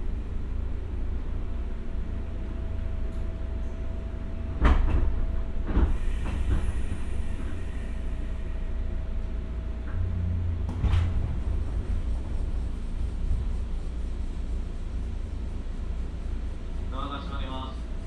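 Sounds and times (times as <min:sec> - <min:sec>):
train interior rumble: 0:00.0 - 0:18.0
train knocks: 0:04.4 - 0:07.8, 0:09.2 - 0:13.5.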